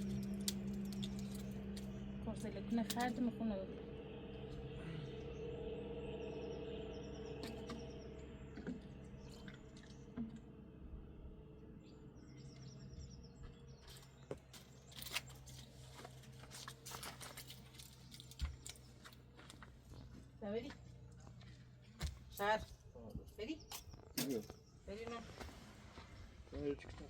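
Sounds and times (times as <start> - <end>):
steady hum: 0.0 - 15.4.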